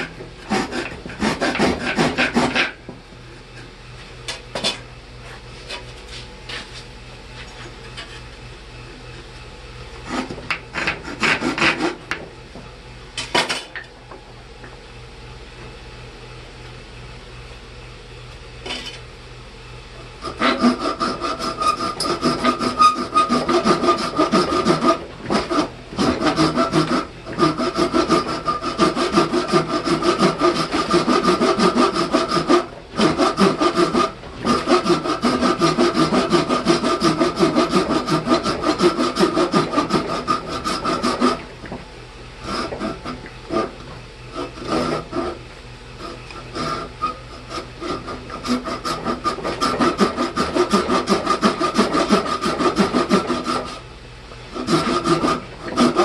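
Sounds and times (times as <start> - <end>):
hand tool scraping: 0.0 - 2.8, 20.2 - 41.4, 44.4 - 45.4, 46.0 - 53.8, 54.6 - 56.0.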